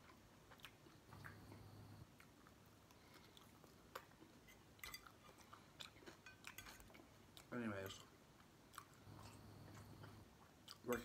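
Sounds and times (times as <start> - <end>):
faint chewing of fries: 0.0 - 11.0.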